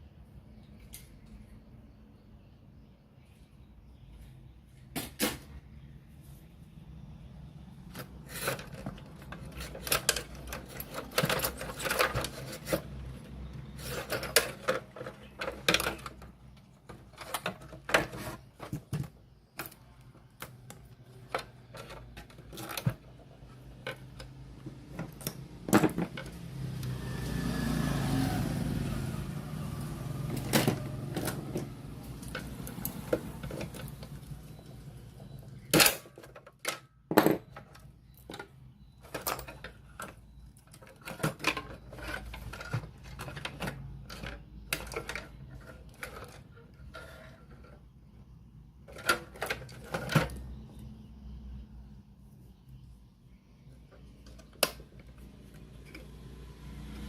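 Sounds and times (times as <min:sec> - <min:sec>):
clicks and clatters of tool work: 0:07.8 - 0:26.9, 0:30.3 - 0:48.2, 0:48.8 - 0:50.9.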